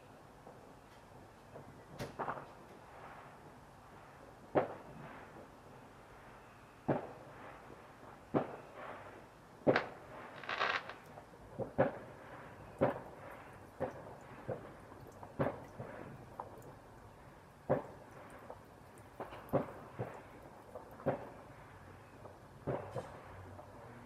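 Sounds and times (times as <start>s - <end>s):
firework bangs: 6.9s - 7.4s, 8.3s - 16.4s, 17.6s - 21.6s, 22.6s - 23.3s
firework crackle: 6.9s - 21.6s.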